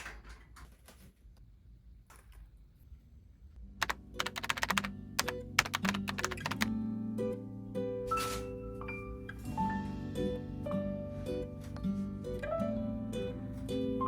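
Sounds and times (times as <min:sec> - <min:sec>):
typing on computer keyboard: 0:03.8 - 0:06.7.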